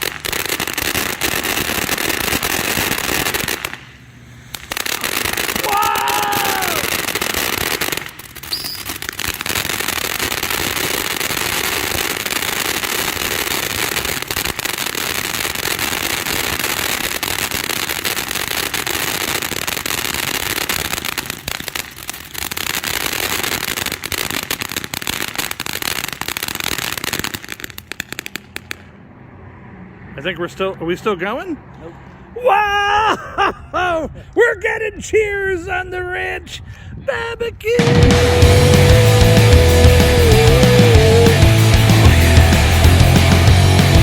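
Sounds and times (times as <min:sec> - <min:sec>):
firework whistle: 0:00.0 - 0:24.4, 0:37.8 - 0:43.9
fountain firework crackling: 0:00.0 - 0:29.0, 0:37.7 - 0:44.0.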